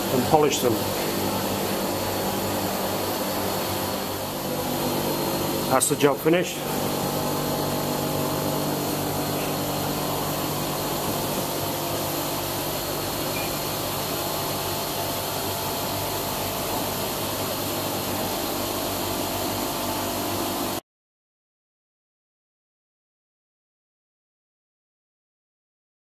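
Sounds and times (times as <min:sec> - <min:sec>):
machinery humming and whirring: 0:00.0 - 0:20.8.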